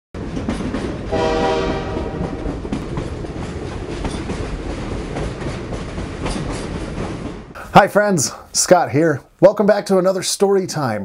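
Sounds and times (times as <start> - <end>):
train wheels clattering on rails: 0.2 - 7.6
train horn blast: 1.1 - 2.6.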